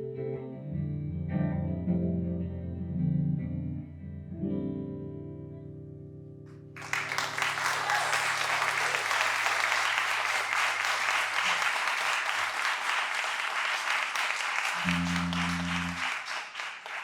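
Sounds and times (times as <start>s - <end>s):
audience applause: 6.8s - 17.0s
guitar chord ringing: 14.9s - 16.0s.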